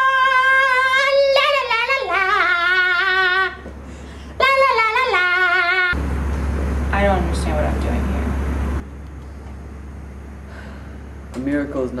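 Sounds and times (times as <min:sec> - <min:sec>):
person singing unaccompanied: 0:00.0 - 0:03.7, 0:04.4 - 0:06.0.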